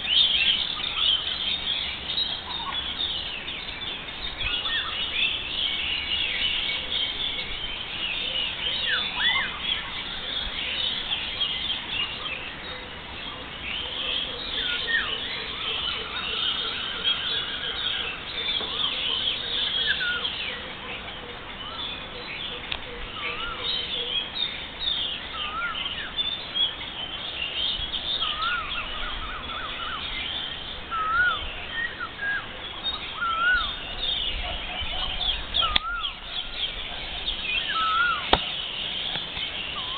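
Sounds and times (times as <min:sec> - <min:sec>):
rising whistled bird notes: 0:14.5 - 0:20.6, 0:27.6 - 0:39.9
high bird chirps: 0:27.7 - 0:39.9.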